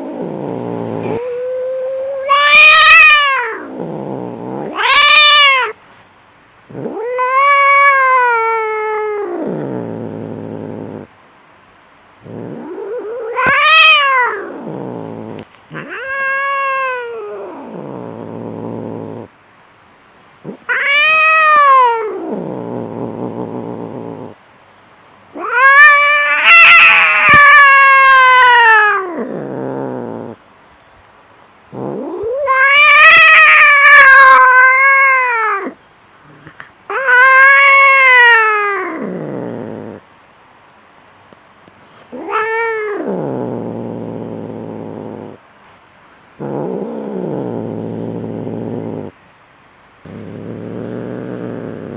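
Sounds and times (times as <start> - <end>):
cats yowling in a fight: 0.0 - 5.8, 6.7 - 11.1, 12.3 - 19.3, 20.5 - 24.4, 25.4 - 30.4, 31.8 - 40.0, 42.1 - 45.4.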